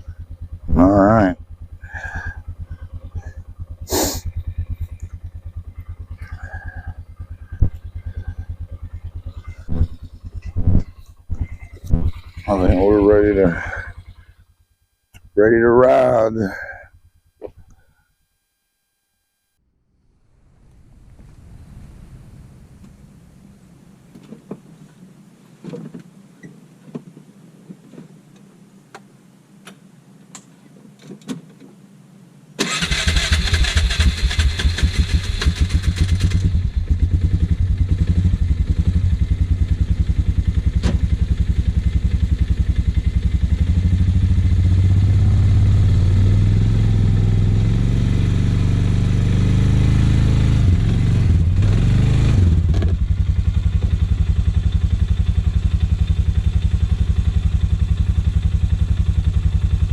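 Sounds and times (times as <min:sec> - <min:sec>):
atv engine starting and running: 0:00.0 - 0:17.6, 0:32.6 - 0:59.9.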